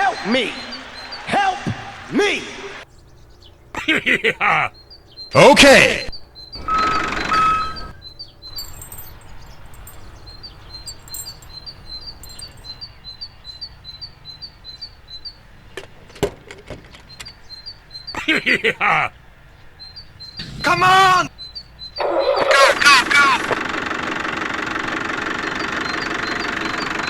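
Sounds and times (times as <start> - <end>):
small bird chirping: 4.6 - 5.5, 6.1 - 15.7, 19.5 - 23.0, 25.4 - 27.0.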